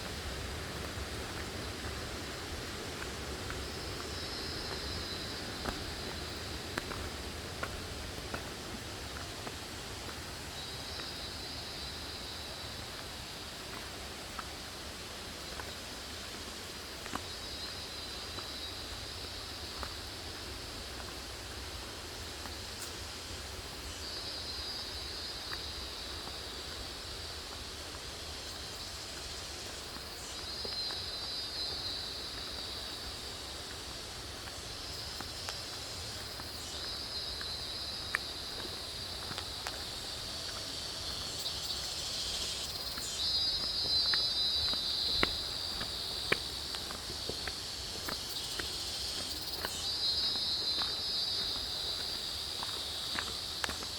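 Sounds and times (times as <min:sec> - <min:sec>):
insects shrill chorus: 0:36.0 - 0:53.8.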